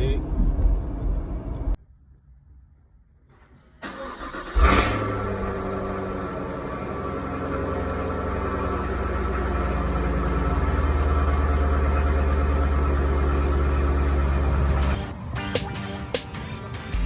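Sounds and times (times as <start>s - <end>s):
car engine idling: 3.8s - 15.1s.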